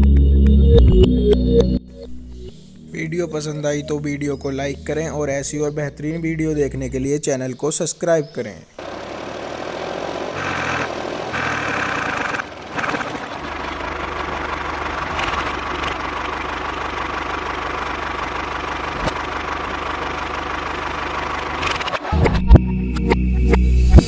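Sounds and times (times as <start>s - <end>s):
small motor humming: 10.3s - 22.0s.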